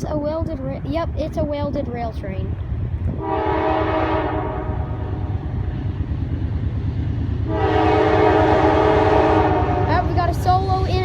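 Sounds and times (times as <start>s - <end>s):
train rolling past rumble: 0.0s - 11.0s
locomotive air horn: 3.2s - 5.0s, 7.5s - 10.0s.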